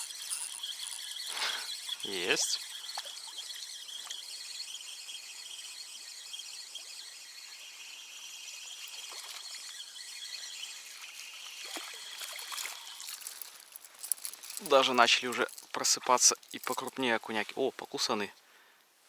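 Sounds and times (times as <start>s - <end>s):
fishing reel whirring: 0.0s - 17.2s
light clicks or splashes: 11.0s - 17.1s.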